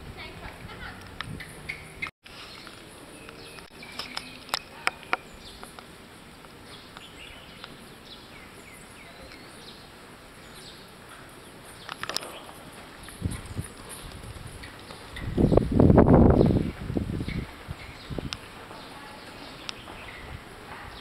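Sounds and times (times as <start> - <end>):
birds chirping: 0.2 - 21.0.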